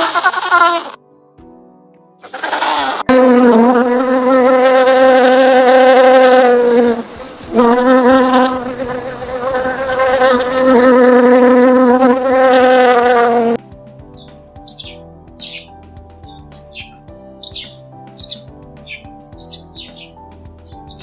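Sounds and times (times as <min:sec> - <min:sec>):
flying insect buzzing: 0:00.0 - 0:01.0, 0:02.2 - 0:13.6.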